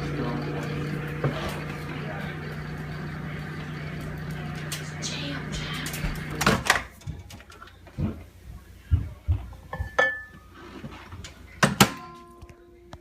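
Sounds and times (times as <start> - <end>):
knocks and clatters of dishes: 9.0 - 10.5, 11.2 - 12.2.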